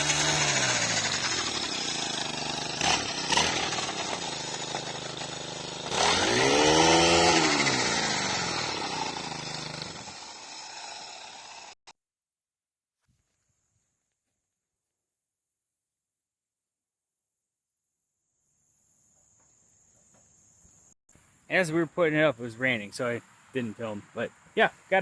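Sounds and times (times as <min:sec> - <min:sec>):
engine running close by: 0:00.0 - 0:11.7.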